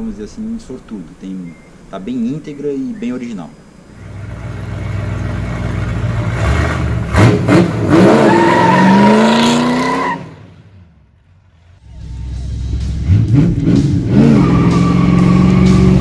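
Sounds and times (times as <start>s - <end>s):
car engine revving: 3.8s - 16.0s
tyre squealing: 6.4s - 10.4s.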